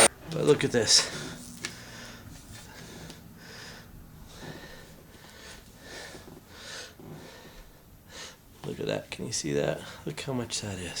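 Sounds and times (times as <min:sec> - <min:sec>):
breathing and sniffing: 0:01.3 - 0:08.5.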